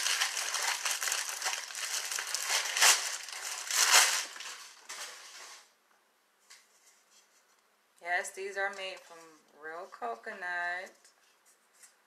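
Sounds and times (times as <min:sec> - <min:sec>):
packing wrap crumpling: 0:00.0 - 0:05.7.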